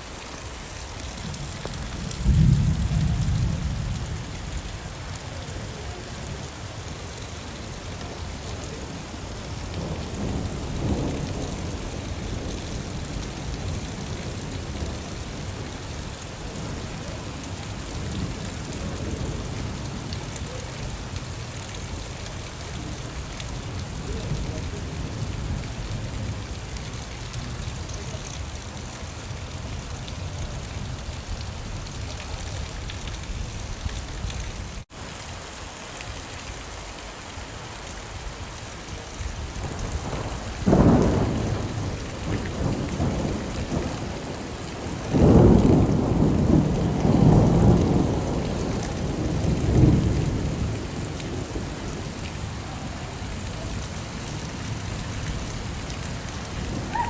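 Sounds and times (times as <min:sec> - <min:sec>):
rainfall hiss: 0:00.0 - 0:57.0
thunder rumbling: 0:01.1 - 0:04.3, 0:39.3 - 0:57.0.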